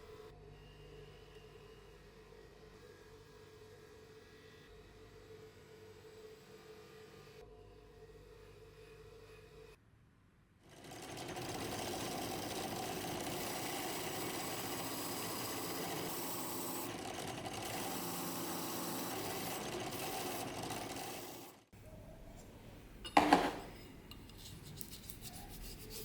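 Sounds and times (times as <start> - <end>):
small power tool motor running: 10.7 - 21.7.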